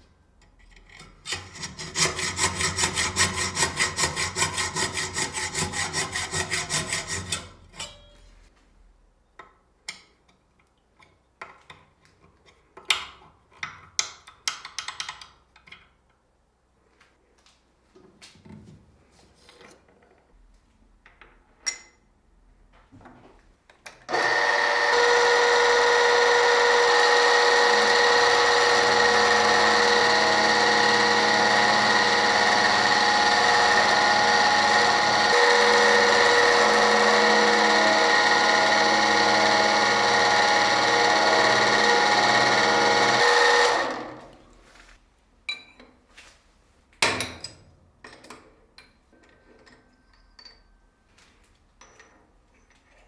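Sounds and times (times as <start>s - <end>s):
power tool motor running: 24.1s - 44.5s.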